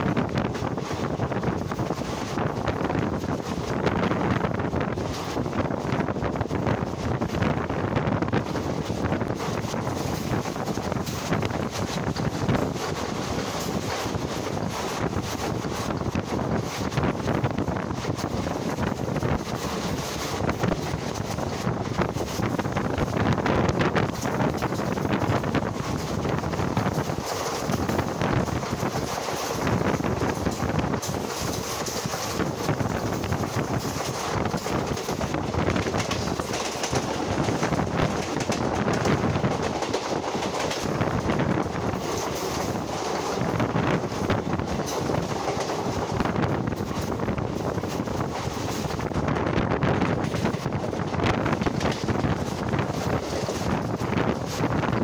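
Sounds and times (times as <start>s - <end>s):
passenger train running at speed: 0.0s - 55.0s
wind buffeting microphone: 0.0s - 55.0s
knocks and rattles: 24.0s - 49.1s.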